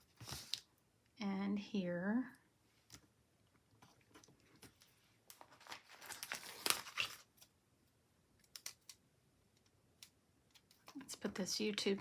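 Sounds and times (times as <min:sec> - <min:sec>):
sticker sheet crinkling: 0:05.3 - 0:07.4.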